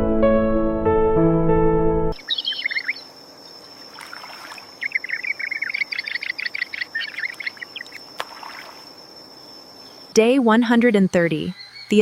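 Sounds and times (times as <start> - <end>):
bird chirping: 2.2 - 3.9, 4.7 - 8.2, 9.3 - 12.0.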